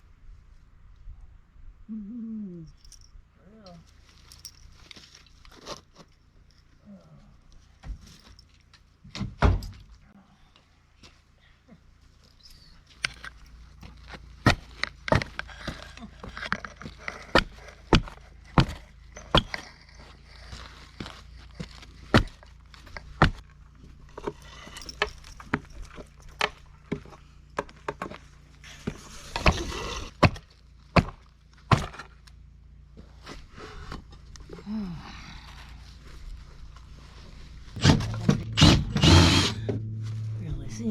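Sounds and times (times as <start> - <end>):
demolition knocks and thuds: 37.8 - 40.9.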